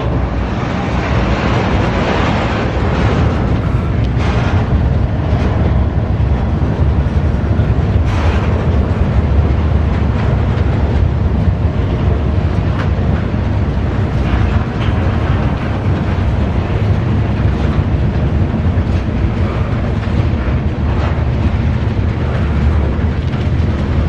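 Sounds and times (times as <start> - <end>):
freight cars rumbling on rails: 0.0 - 24.0.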